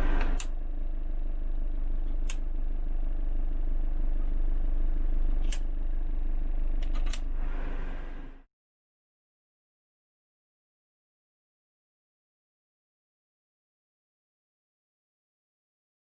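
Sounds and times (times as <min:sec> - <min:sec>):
diesel engine idling: 0:00.0 - 0:08.4
heater blower fan running: 0:00.0 - 0:08.4
sharp clicks: 0:02.1 - 0:02.5.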